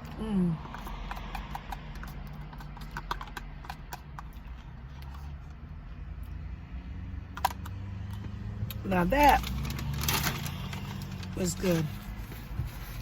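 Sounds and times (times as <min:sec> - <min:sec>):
chewing and eating: 0:00.0 - 0:05.7.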